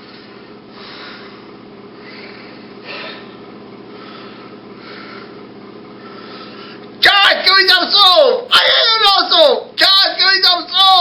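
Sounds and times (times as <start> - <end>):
steady electrical hum: 0.0 - 11.0
person breathing close to microphone: 0.7 - 5.4.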